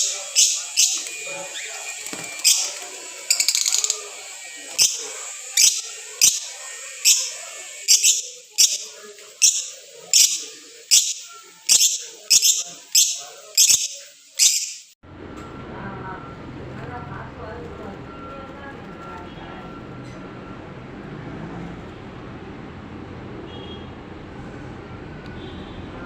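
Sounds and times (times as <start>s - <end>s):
bird chattering trill: 0.0s - 14.9s
lovebird shrill calls: 0.0s - 14.9s.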